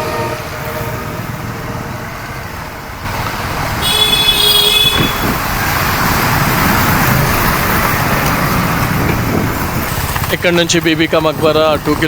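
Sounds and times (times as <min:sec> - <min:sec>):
vehicle horn honking: 0:00.0 - 0:01.3, 0:03.8 - 0:05.5
road traffic noise: 0:00.0 - 0:12.0
wind and road noise: 0:00.0 - 0:12.0.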